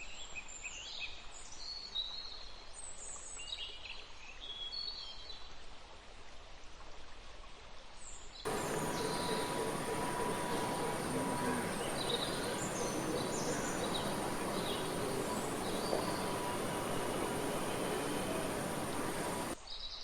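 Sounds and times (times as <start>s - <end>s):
small birds chirping: 8.5s - 19.6s
steady background hiss: 8.5s - 19.6s
steady hum: 8.5s - 19.6s.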